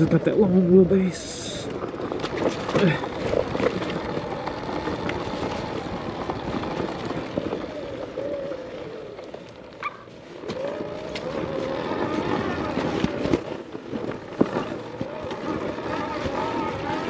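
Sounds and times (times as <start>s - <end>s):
tyres on dirt and rock: 0.0s - 17.0s
electric motor whine: 1.6s - 17.0s.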